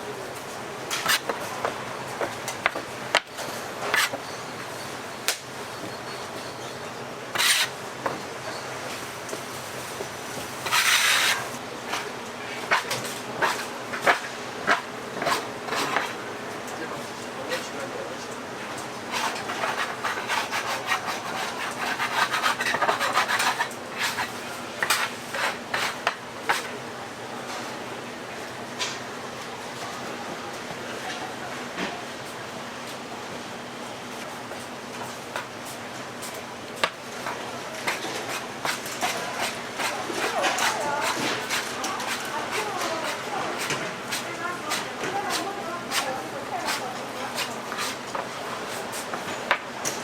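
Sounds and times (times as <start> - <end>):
dough and utensils scraping: 0.9 - 1.6, 2.2 - 4.4, 7.3 - 7.7, 9.3 - 16.2, 19.1 - 26.7, 37.2 - 49.5
rough rubbing and scraping: 7.4 - 7.7, 10.4 - 11.6.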